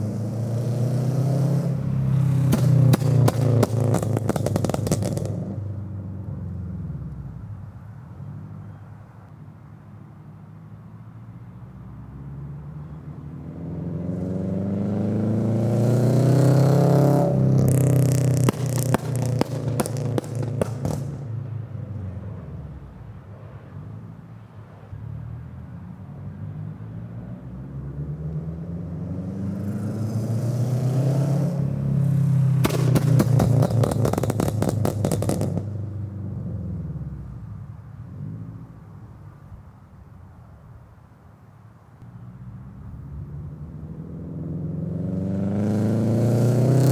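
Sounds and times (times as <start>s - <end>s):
car engine revving: 0.0s - 5.7s, 13.6s - 21.5s, 28.0s - 37.0s, 43.6s - 46.9s
exhaust crackles and pops: 1.6s - 5.7s, 17.0s - 21.5s, 31.2s - 35.9s.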